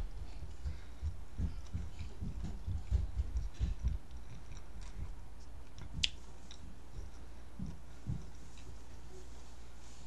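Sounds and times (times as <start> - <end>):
person chewing: 3.4 - 8.7.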